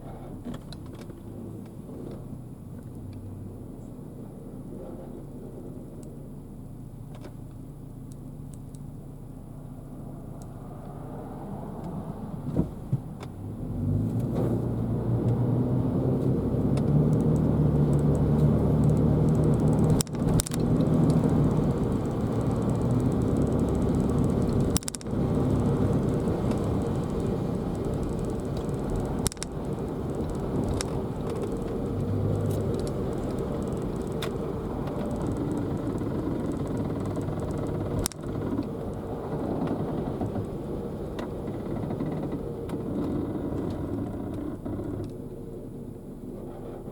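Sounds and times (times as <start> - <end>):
car engine and road rumble: 0.0 - 46.9
sharp clicks: 16.6 - 39.0.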